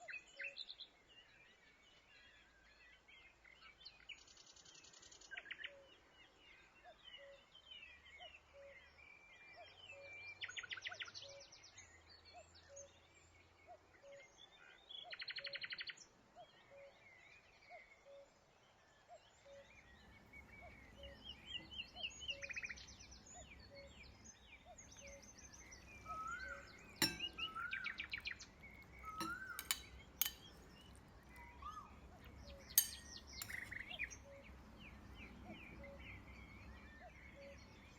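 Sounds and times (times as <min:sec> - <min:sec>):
birds chirping: 0:19.6 - 0:37.9
bird trills: 0:19.8 - 0:37.9.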